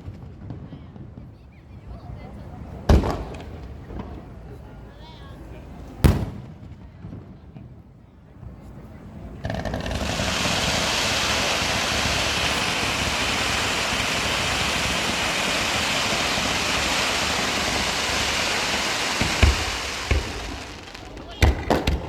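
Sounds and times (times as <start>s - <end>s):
firework bangs: 2.9s - 4.2s, 6.1s - 7.2s, 9.2s - 22.0s
fireworks hissing sparks: 9.5s - 22.0s.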